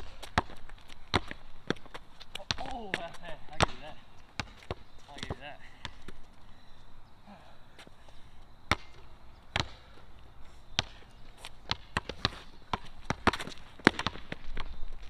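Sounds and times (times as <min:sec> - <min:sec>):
basketball bouncing on court: 0:00.0 - 0:06.2, 0:08.7 - 0:10.0, 0:10.8 - 0:11.0, 0:11.6 - 0:14.7.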